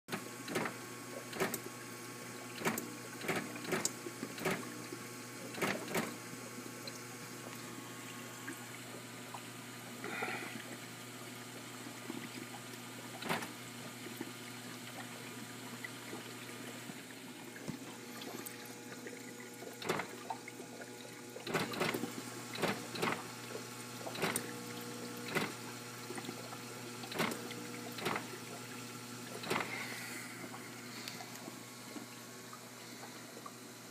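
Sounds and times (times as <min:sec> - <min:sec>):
ice maker clicking: 0:00.1 - 0:01.6, 0:02.5 - 0:04.7, 0:05.5 - 0:06.2, 0:13.2 - 0:13.6, 0:19.8 - 0:20.2, 0:21.4 - 0:23.3, 0:24.1 - 0:25.6, 0:27.1 - 0:28.4, 0:29.4 - 0:30.0
steady low hum: 0:00.1 - 0:33.9.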